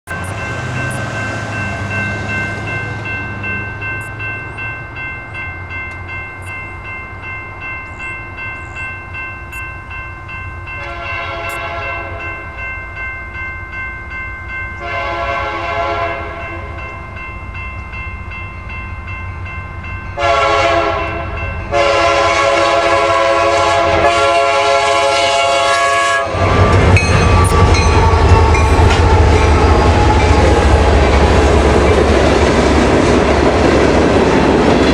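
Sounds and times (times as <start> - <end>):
locomotive rumbling past: 0.1 - 34.9
locomotive horn blasts: 10.7 - 12.4, 14.8 - 16.8, 20.2 - 27.6.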